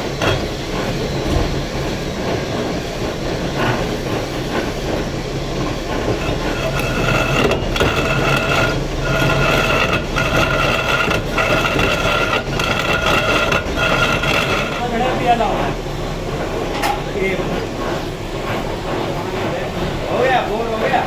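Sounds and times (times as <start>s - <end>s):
power tool low hum: 6.1s - 14.9s.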